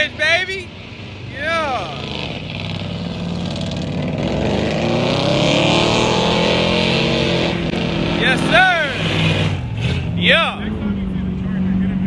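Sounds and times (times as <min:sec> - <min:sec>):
truck engine revving hard: 0:01.4 - 0:12.0.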